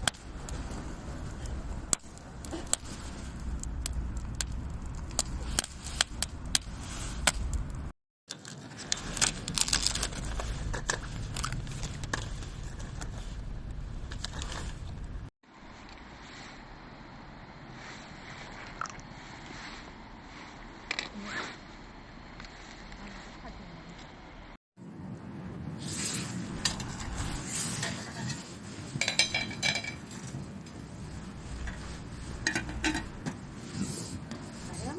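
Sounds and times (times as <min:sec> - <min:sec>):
wood fire crackling: 0:00.0 - 0:34.9
tableware clattering and clinking: 0:29.0 - 0:30.1.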